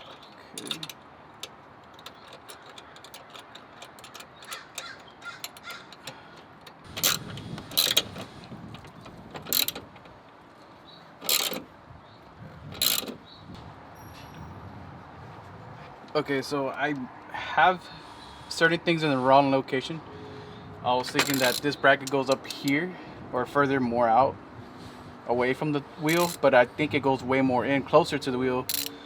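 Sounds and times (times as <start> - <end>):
light clicks of car parts: 0.0 - 14.4, 21.0 - 23.5, 26.0 - 26.5, 28.6 - 29.0.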